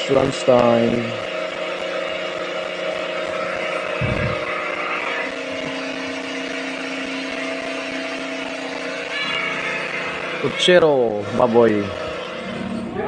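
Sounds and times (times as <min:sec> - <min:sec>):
motor hum: 0:00.0 - 0:13.0.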